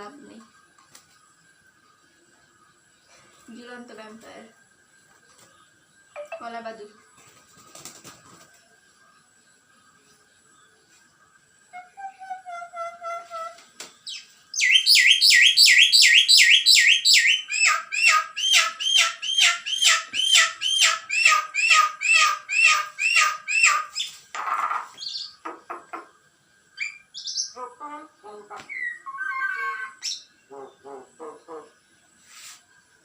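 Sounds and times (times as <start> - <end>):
bird chick chirping: 12.2 - 26.2.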